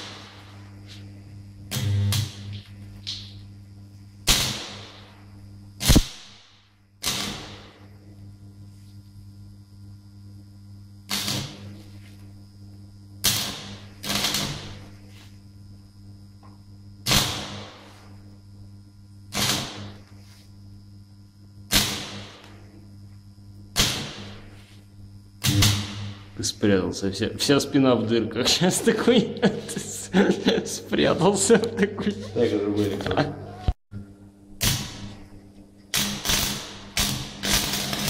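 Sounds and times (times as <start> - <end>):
transformer hum: 0.0 - 3.8, 25.2 - 33.7
welding arc crackling: 0.0 - 32.3, 34.5 - 38.0.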